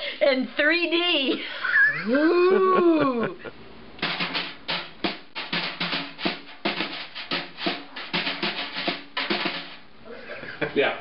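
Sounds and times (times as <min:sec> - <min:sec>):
percussive strikes with ringing: 0:04.0 - 0:09.9.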